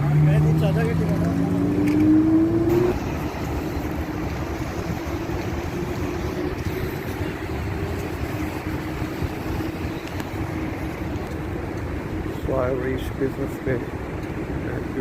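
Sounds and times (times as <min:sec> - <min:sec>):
train motor whine and rumble: 0:02.7 - 0:12.4.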